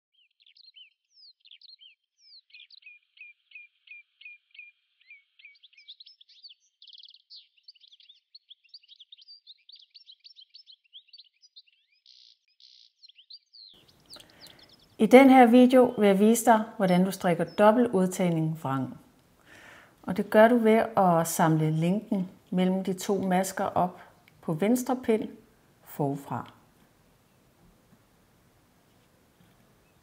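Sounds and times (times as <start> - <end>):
faint songbird chirping and trilling: 0.1 - 18.9.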